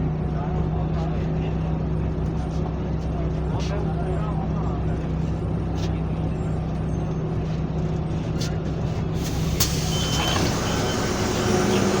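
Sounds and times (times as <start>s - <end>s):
bus engine running: 0.0s - 12.0s
road noise: 0.0s - 12.0s
short high beep: 9.8s - 11.2s.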